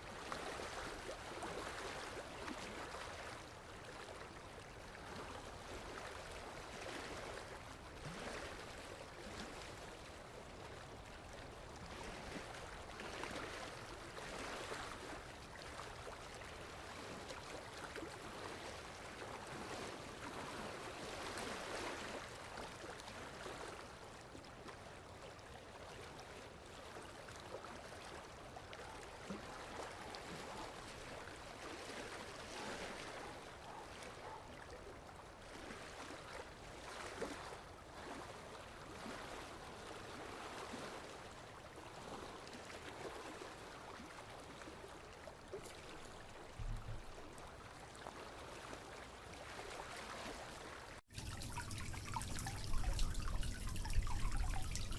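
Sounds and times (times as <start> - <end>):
water rushing and splashing: 41.9 - 54.9.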